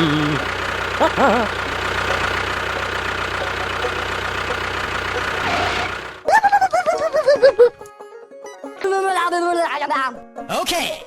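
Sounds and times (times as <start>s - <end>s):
engine idling: 0.0s - 7.8s.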